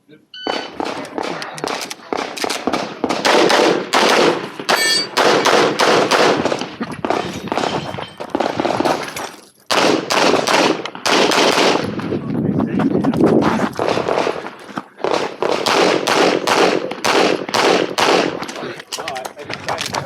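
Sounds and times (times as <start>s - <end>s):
rapid handgun shots: 0.6s - 9.0s, 9.7s - 12.0s, 13.8s - 18.6s
steel target ringing: 4.7s - 5.2s.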